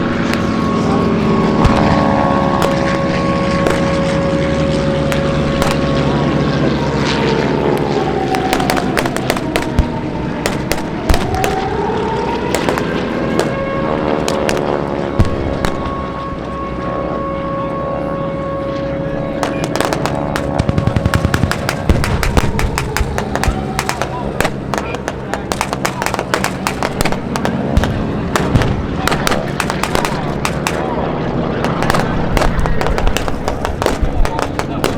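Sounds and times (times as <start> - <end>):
propeller planes passing overhead: 0.0 - 34.9
pyrotechnic pops and cracks: 0.2 - 0.6, 1.6 - 6.1, 7.8 - 11.8, 12.5 - 16.0, 19.4 - 31.0, 31.6 - 34.9.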